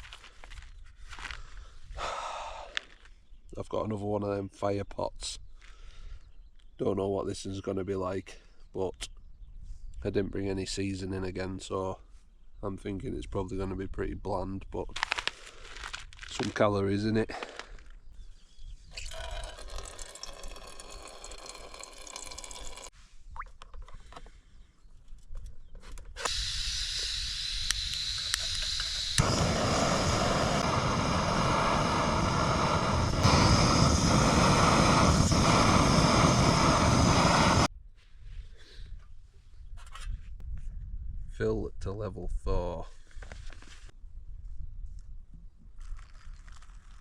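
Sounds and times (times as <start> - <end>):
hot water rushing: 19.1 - 22.9, 26.3 - 37.7.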